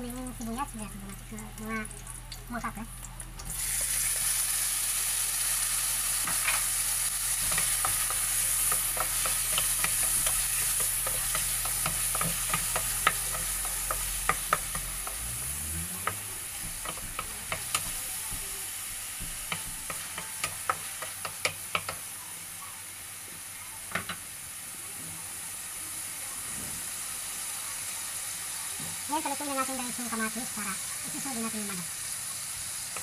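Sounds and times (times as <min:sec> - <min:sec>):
tomatoes sizzling in hot oil: 0:00.0 - 0:33.0
wooden spatula tapping a pan: 0:07.4 - 0:15.3, 0:16.0 - 0:22.1, 0:23.9 - 0:24.2.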